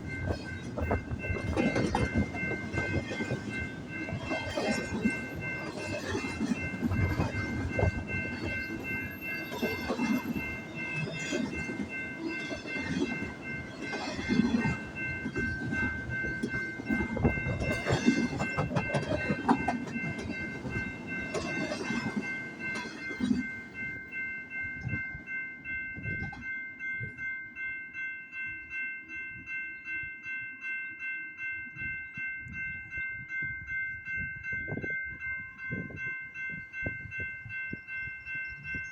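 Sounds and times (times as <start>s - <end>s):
crossing warning bell ringing: 0.0s - 38.9s
train wheels clattering over rail joints: 13.9s - 23.4s.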